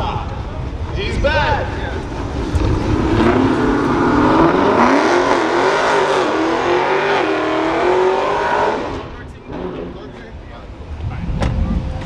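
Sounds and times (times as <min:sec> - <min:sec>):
car engine revving: 0:01.9 - 0:10.2.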